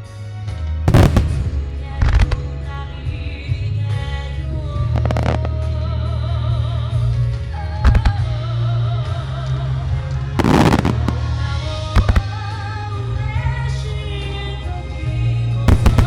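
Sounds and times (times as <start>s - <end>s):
firework shells bursting: 0.9s - 2.7s, 7.9s - 8.2s, 10.4s - 11.4s, 12.0s - 12.4s, 15.7s - 16.0s
loud show music with bass: 0.9s - 3.8s, 4.6s - 5.8s, 7.6s - 8.5s, 10.4s - 12.4s, 15.7s - 16.0s.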